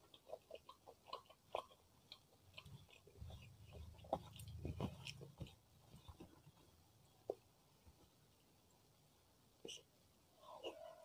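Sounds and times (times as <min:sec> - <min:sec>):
chewing soft rice: 0:00.0 - 0:08.0.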